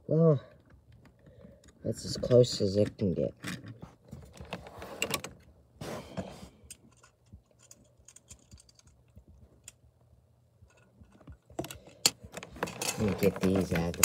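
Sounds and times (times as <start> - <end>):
plastic toy pieces rustling: 10.7 - 14.0.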